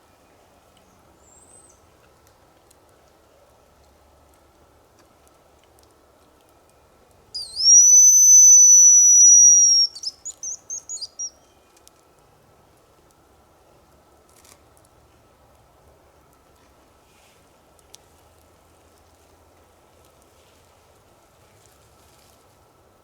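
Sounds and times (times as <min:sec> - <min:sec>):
decoy whistle: 0:07.4 - 0:11.4.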